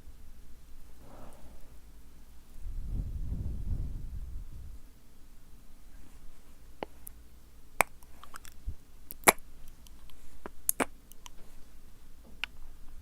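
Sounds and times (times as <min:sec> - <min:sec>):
lip smacks: 0:07.8 - 0:11.4
tongue clicks: 0:07.8 - 0:11.4.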